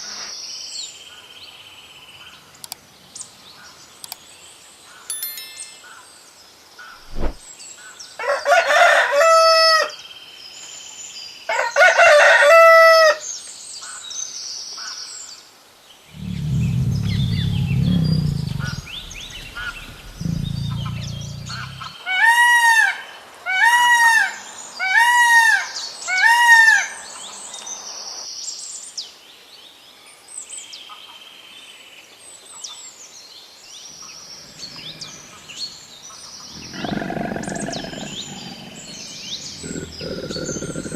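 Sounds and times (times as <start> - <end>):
small birds chirping: 16.1 - 22.0, 33.7 - 40.9
low rumbling: 16.2 - 22.0, 34.3 - 40.9
rising and falling bird calls: 16.2 - 22.0, 34.0 - 40.9.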